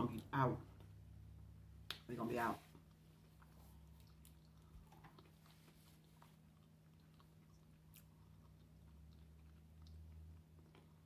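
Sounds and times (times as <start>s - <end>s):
steady low hum: 0.0s - 11.0s
person chewing with mouth closed: 2.7s - 11.0s.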